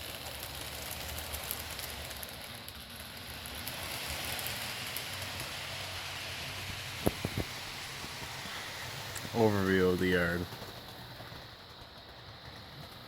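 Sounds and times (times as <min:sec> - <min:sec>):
model train wheels on rail: 0:00.0 - 0:13.0
faint low motor hum: 0:00.4 - 0:13.0.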